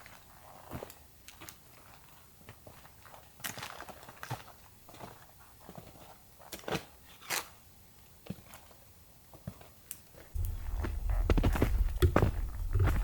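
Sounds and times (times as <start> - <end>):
footsteps in snow: 10.4 - 13.0.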